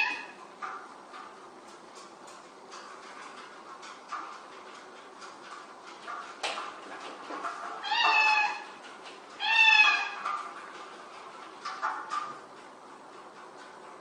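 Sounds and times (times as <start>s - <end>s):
cat meowing: 7.8s - 8.8s, 9.4s - 10.2s.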